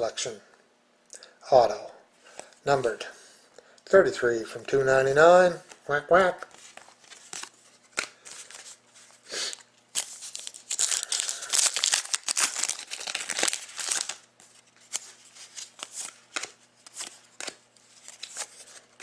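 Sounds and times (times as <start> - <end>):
plastic packaging crinkling and tearing: 9.5 - 19.0.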